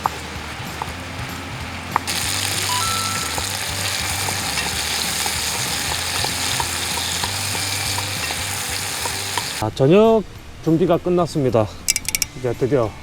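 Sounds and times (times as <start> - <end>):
meat sizzling in a pan: 0.0 - 9.6.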